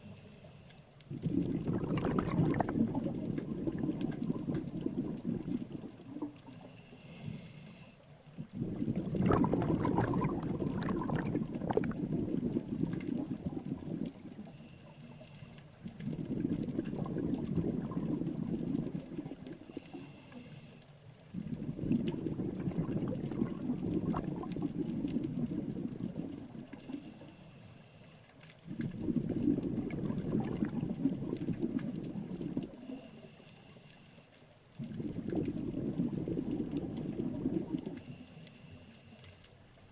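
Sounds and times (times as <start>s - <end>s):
regulator hissing inhale: 0.0s - 1.0s, 6.5s - 8.2s, 14.4s - 15.8s, 19.6s - 21.0s, 26.8s - 28.4s, 32.8s - 34.4s, 38.0s - 39.5s
bubbling exhalation: 1.1s - 6.4s, 8.4s - 14.4s, 15.9s - 19.6s, 21.3s - 26.9s, 28.6s - 33.0s, 34.8s - 38.0s.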